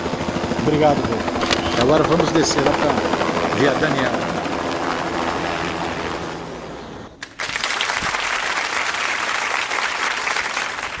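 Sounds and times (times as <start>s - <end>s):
helicopter running: 0.0s - 7.0s
crowd applause: 7.2s - 11.0s.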